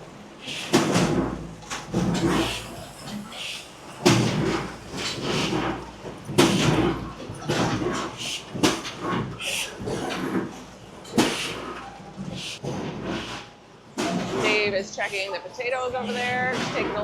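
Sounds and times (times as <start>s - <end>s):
low machine hum: 0.0s - 12.6s.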